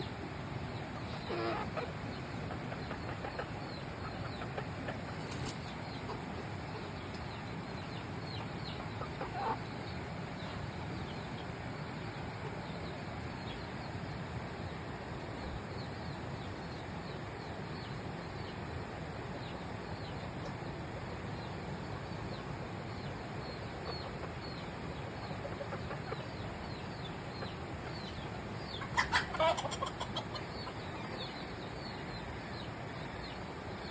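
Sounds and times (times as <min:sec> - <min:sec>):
chickens peeping: 0:00.0 - 0:14.2, 0:19.4 - 0:33.9
chicken calls: 0:00.8 - 0:09.8, 0:23.6 - 0:32.9.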